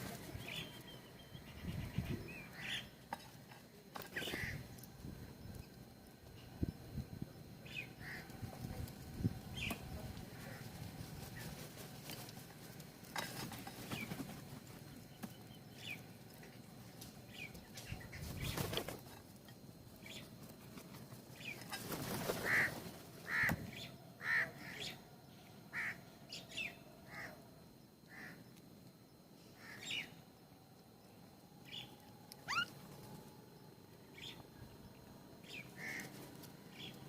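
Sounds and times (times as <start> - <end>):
wing flapping: 0.0 - 0.7, 8.4 - 15.3, 17.7 - 19.3, 20.6 - 23.7
bird chirps: 31.6 - 32.8.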